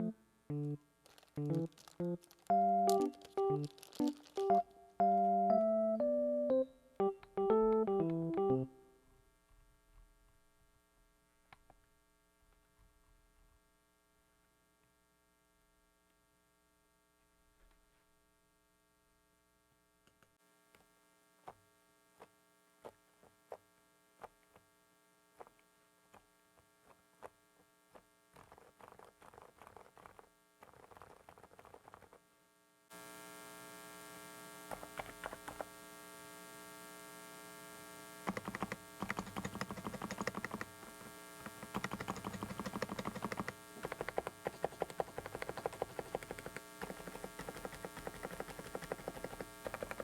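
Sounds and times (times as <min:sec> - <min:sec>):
electrical hum: 0:00.0 - 0:09.0, 0:32.9 - 0:50.0
mechanical keyboard typing: 0:01.1 - 0:04.7, 0:28.4 - 0:32.2, 0:34.7 - 0:35.7, 0:38.2 - 0:40.8, 0:41.4 - 0:50.0.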